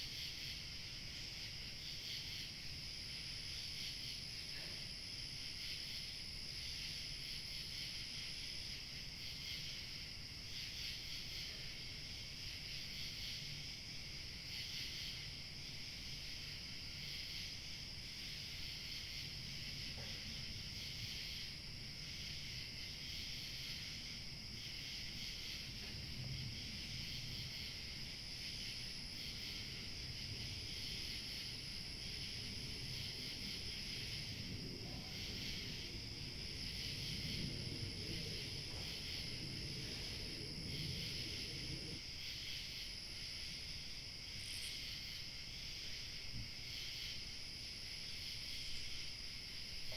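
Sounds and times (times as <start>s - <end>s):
crickets chirping: 0.0s - 49.9s
high insect trill: 0.0s - 49.9s
light wind rumble: 15.2s - 46.7s.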